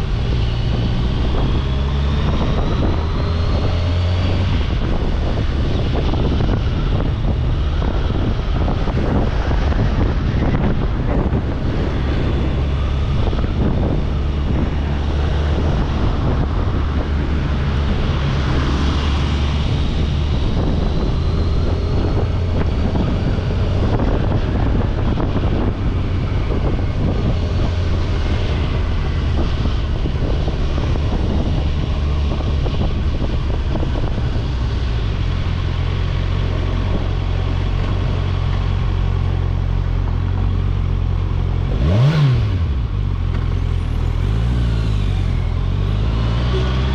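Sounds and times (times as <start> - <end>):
motorcycle engine droning: 0.0 - 46.9
wind rushing over microphone: 0.0 - 46.9.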